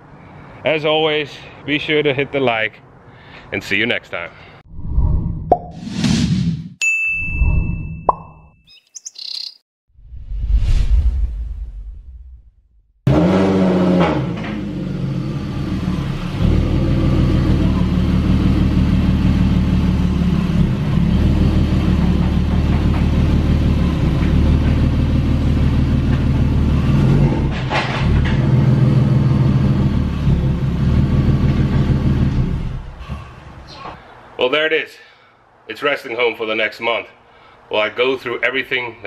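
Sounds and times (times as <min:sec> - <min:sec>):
car engine running at low revs: 0:13.1 - 0:33.0.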